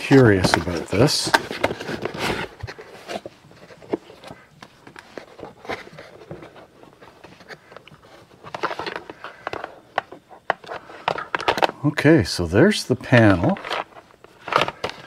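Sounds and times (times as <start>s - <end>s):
cardboard packaging rustles and taps: 0.0s - 11.8s.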